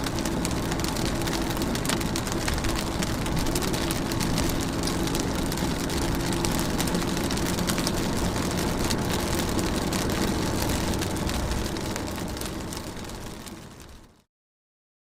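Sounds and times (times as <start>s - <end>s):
heavy rain: 0.0s - 14.2s.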